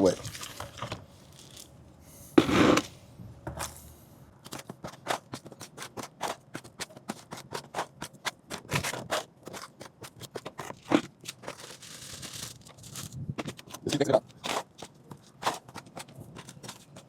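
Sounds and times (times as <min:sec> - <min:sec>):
trowel scraping cement in a pan: 0:02.4 - 0:03.9.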